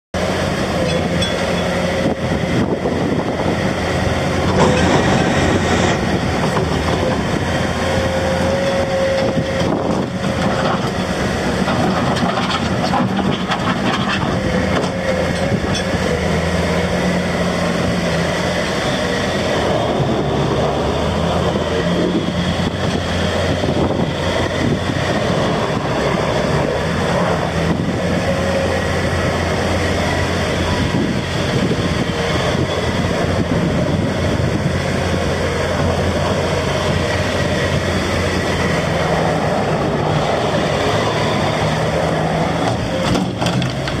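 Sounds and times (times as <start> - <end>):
diesel engine running: 0.2 - 44.0.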